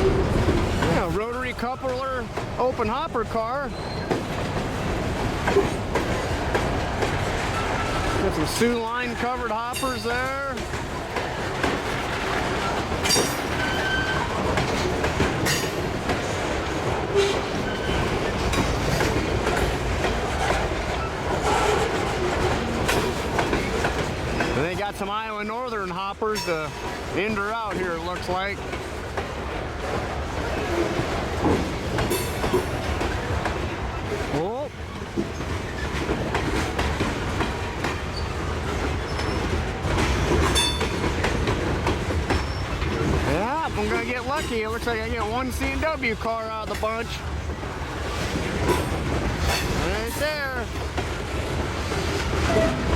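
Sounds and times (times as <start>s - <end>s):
train wheels rumbling: 0.0s - 52.9s
wheels clacking over rail joints: 0.0s - 52.9s
wheel squeals: 3.7s - 4.3s, 12.6s - 14.8s, 17.1s - 18.6s, 38.0s - 38.4s, 39.0s - 41.2s, 42.3s - 43.0s, 52.4s - 52.9s.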